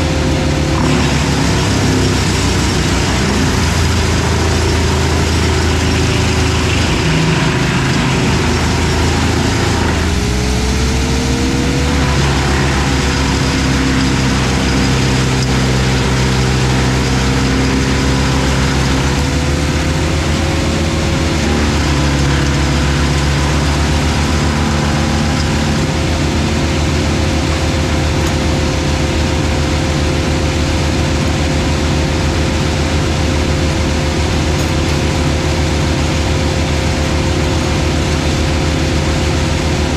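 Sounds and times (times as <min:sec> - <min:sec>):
steady wavering whine: 0:00.0 - 0:30.3
excavator running: 0:00.0 - 0:39.9
wood chipper running: 0:00.0 - 0:39.9.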